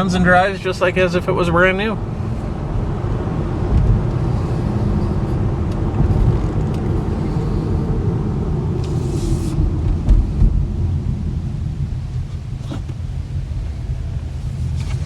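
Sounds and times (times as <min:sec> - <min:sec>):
road and drivetrain rumble in car: 0:00.0 - 0:15.0
brief hiss: 0:08.8 - 0:09.6.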